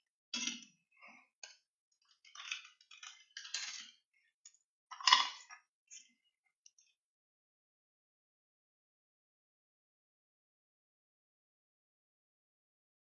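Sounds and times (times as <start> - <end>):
small tools clattering and scraping: 0.4 - 6.8.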